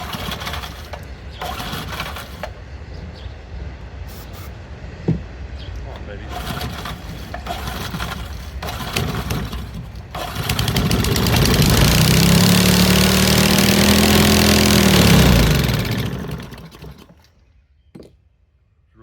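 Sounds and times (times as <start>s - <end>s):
small engine running: 0.0s - 2.6s, 6.3s - 17.2s.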